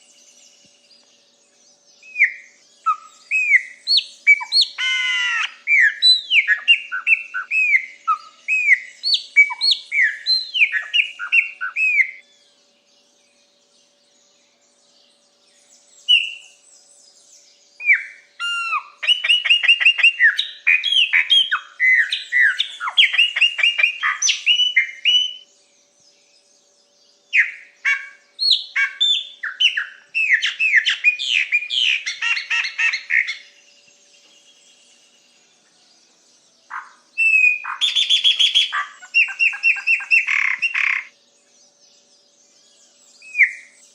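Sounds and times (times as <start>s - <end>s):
songbird whistling: 2.0s - 12.3s, 15.6s - 17.2s, 17.8s - 25.5s, 27.3s - 35.2s, 36.7s - 41.2s, 42.0s - 43.9s.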